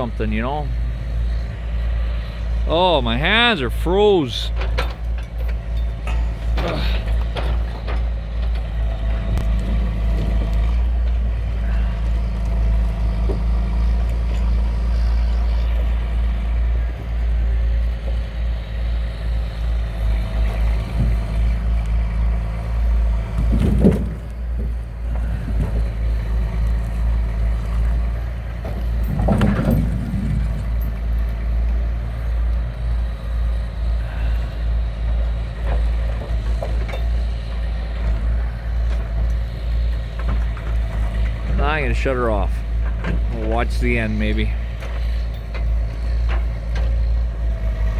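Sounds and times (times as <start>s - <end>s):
truck engine rumbling: 0.0s - 47.9s.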